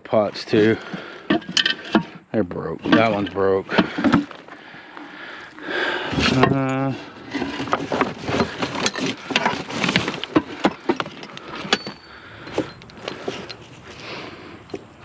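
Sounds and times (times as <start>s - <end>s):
junk knocking and clattering: 0.6s - 4.5s, 6.1s - 13.6s.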